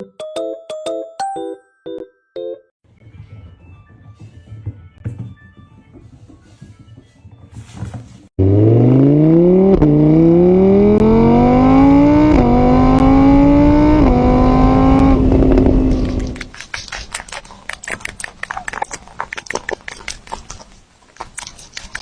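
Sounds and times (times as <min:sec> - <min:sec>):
vehicle engine accelerating hard: 0:08.4 - 0:16.5.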